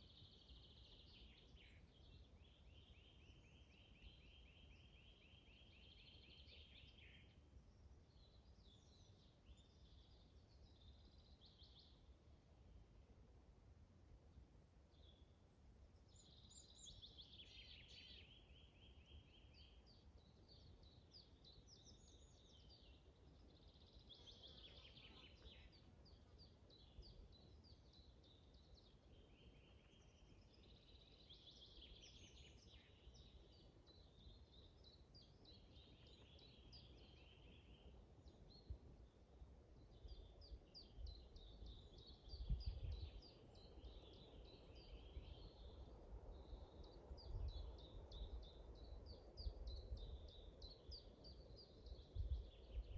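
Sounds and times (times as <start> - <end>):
faint birdsong: 0.0 - 52.9
wind rumble on microphone: 39.9 - 52.9.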